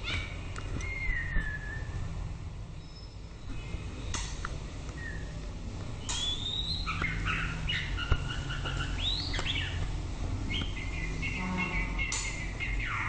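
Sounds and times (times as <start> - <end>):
bird singing whistled phrases: 0.0 - 2.0, 5.0 - 5.4, 6.0 - 9.8.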